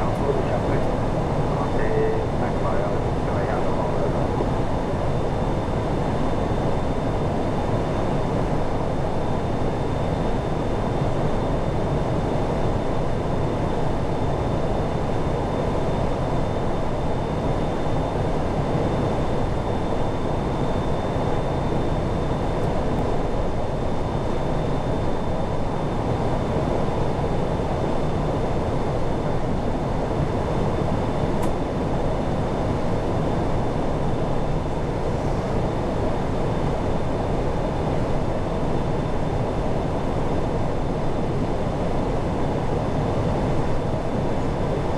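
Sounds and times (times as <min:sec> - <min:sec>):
aircraft flight deck rush: 0:00.0 - 0:06.8.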